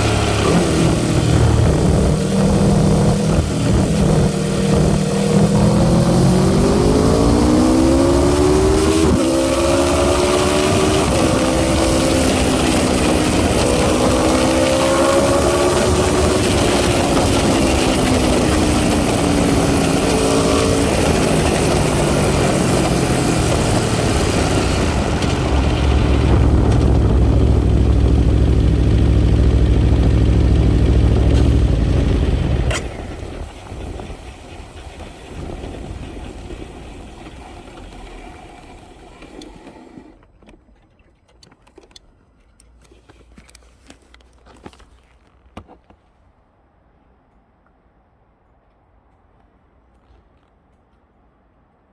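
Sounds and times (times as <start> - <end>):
motorcycle engine revving and rumbling: 0.0 - 38.9.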